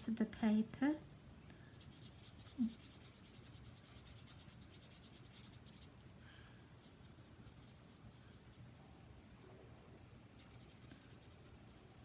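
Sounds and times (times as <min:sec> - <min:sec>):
marker scratching on card: 0:01.8 - 0:06.0, 0:06.8 - 0:08.8, 0:10.4 - 0:12.0.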